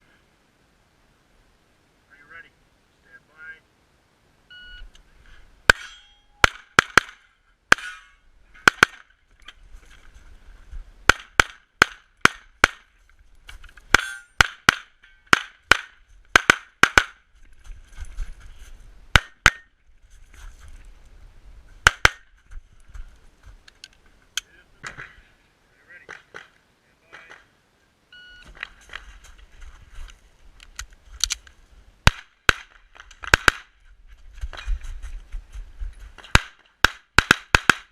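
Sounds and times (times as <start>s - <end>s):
short beep: 4.5s - 4.9s, 28.1s - 28.5s
pistol shots: 8.6s - 9.1s, 36.3s - 37.9s.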